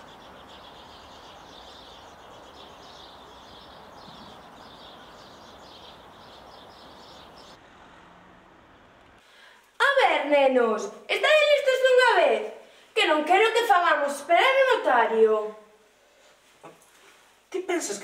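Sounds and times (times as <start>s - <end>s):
small birds chirping: 0.0s - 7.6s
outdoor background hiss: 0.0s - 18.0s.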